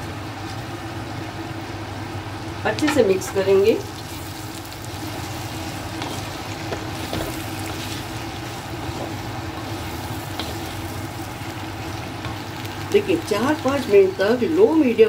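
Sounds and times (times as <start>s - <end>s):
steady low hum: 0.0s - 15.0s
food sizzling in a pan: 3.0s - 15.0s.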